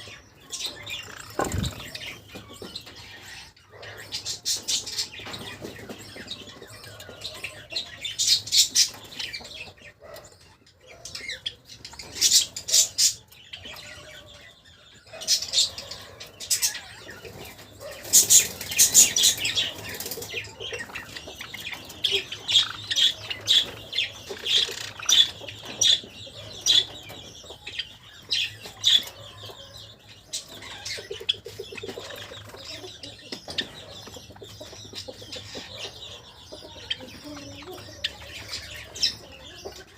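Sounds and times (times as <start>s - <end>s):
sparrows chirping: 0.0s - 39.9s
wings fluttering: 1.1s - 2.2s.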